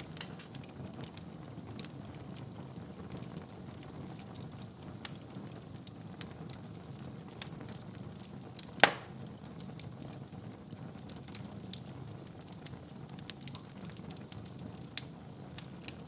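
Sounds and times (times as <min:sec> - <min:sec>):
fire rumbling: 0:00.0 - 0:16.0
wood fire crackling: 0:00.0 - 0:16.0
loud sharp pop of fire: 0:08.6 - 0:09.5.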